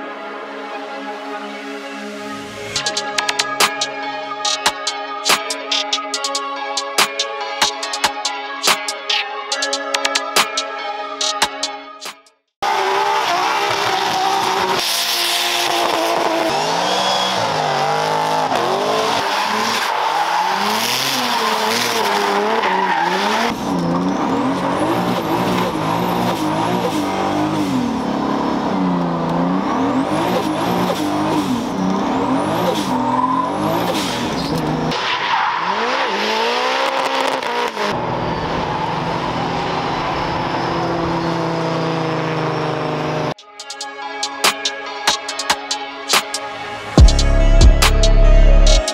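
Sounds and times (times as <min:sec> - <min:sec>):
car engines revving hard: 0:12.6 - 0:43.4.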